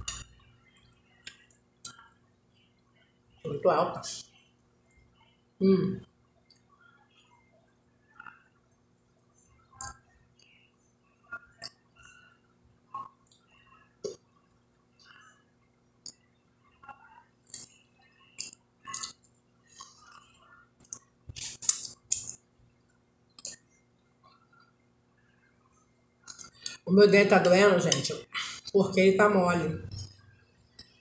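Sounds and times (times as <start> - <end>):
lip smacks: 20.8 - 22.4
wet mouth sounds: 20.8 - 22.4.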